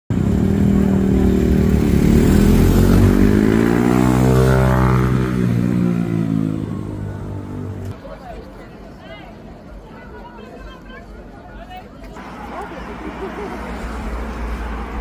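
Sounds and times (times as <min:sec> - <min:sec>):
vehicle engine passing by: 0:00.1 - 0:08.0.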